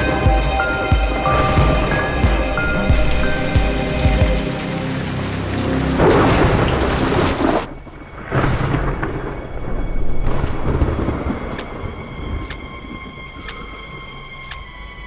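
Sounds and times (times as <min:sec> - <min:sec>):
thunder rolling: 0:01.3 - 0:14.3
rain hiss: 0:02.9 - 0:08.2.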